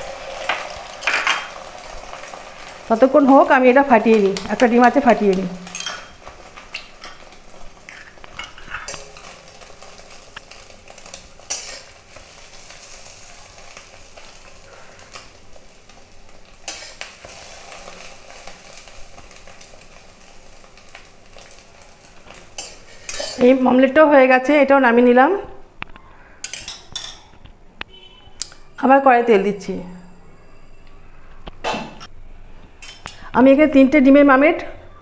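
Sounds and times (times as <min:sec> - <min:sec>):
omelet sizzling in oil: 0:00.0 - 0:23.8
metal spatula scraping a pan: 0:05.6 - 0:15.2, 0:16.6 - 0:18.5, 0:22.5 - 0:23.6.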